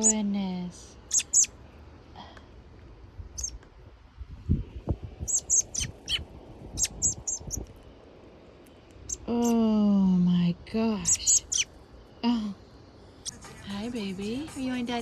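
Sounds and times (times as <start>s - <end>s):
young bird chirping: 0.0s - 0.2s, 1.0s - 1.6s, 3.4s - 3.6s, 5.2s - 7.8s, 9.0s - 9.6s, 11.0s - 11.8s.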